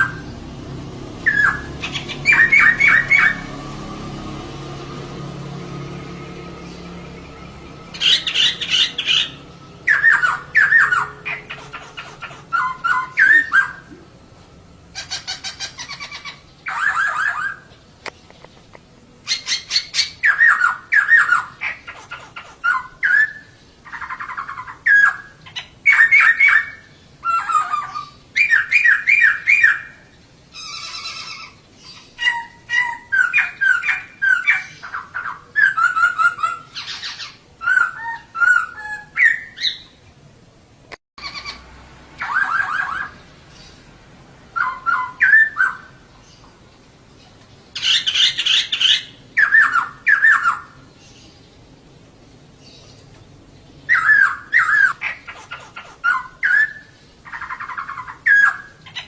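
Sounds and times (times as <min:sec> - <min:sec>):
bird chattering call: 0:01.2 - 0:03.5, 0:07.9 - 0:13.9, 0:14.9 - 0:17.7, 0:19.2 - 0:40.0, 0:41.2 - 0:41.6, 0:42.2 - 0:43.7, 0:53.9 - 0:59.0.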